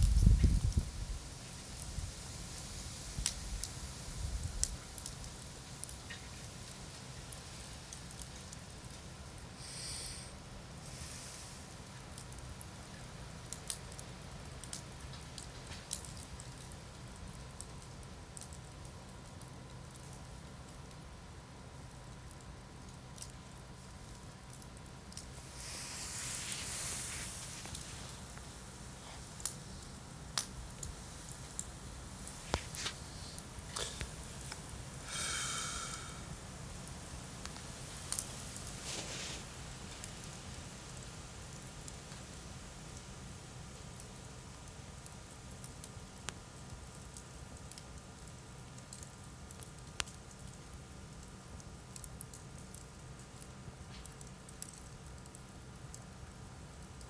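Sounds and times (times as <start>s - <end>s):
campfire crackling and popping: 0.0s - 57.0s
fire low rumble: 0.0s - 57.0s
hiss with whistling edge: 9.6s - 11.7s, 25.3s - 30.0s, 32.1s - 36.4s.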